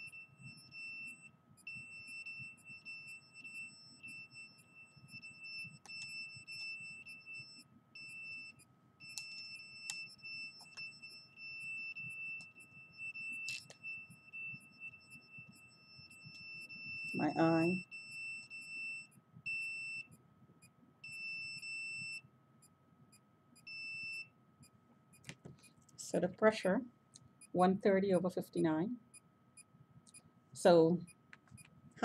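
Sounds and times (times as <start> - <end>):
high-pitched electronic alarm tone: 0.0 - 20.2, 21.0 - 22.2, 23.6 - 24.3.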